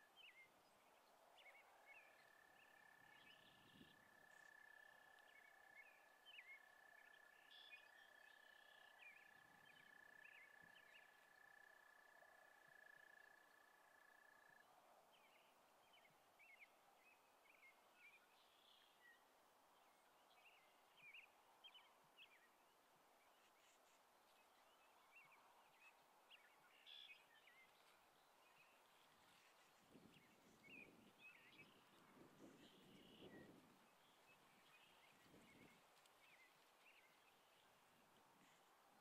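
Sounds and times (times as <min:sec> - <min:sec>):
small birds chirping: 0:23.2 - 0:39.0
low rustle: 0:27.6 - 0:39.0.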